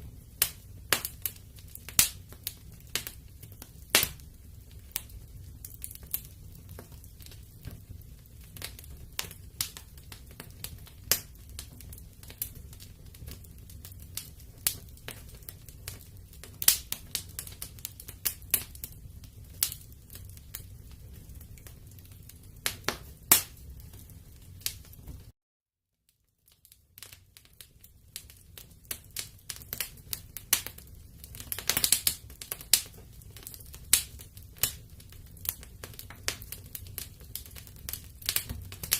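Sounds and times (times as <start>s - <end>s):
wood fire crackling: 0.0s - 25.3s, 26.1s - 38.9s.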